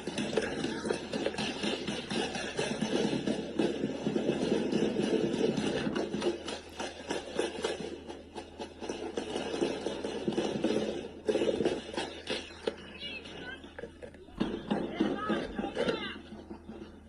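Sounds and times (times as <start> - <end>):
rapid gunfire: 0.0 - 13.2.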